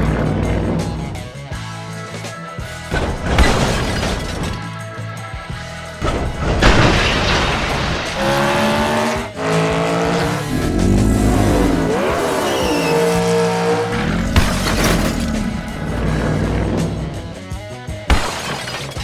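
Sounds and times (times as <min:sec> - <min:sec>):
background music: 0:00.0 - 0:19.0
race car engine revving: 0:06.0 - 0:17.6
tire squeal: 0:07.6 - 0:17.0.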